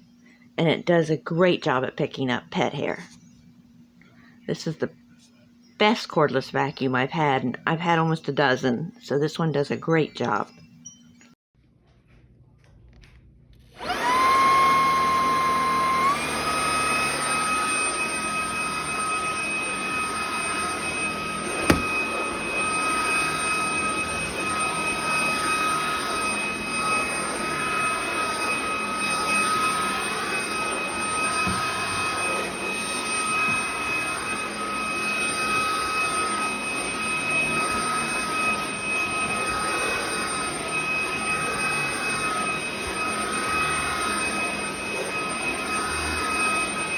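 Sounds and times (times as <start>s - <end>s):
vacuum cleaner motor whine: 13.8s - 46.9s
sharp knock: 21.6s - 22.0s.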